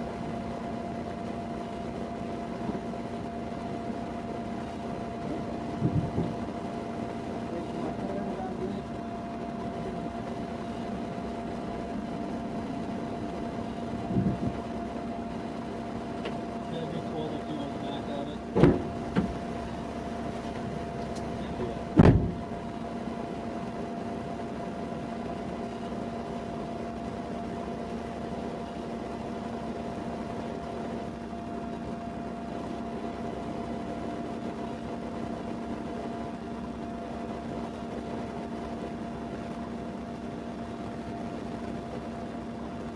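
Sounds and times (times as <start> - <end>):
vehicle idling hum: 0.0 - 42.9
sharp knocks: 5.8 - 6.5, 18.6 - 19.5, 21.6 - 22.5.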